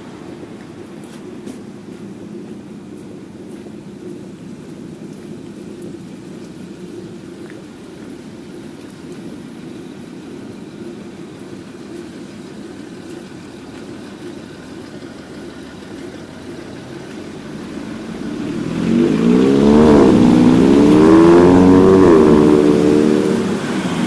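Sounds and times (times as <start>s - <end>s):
low traffic rumble: 0.0s - 24.0s
car engine accelerating: 15.2s - 24.0s.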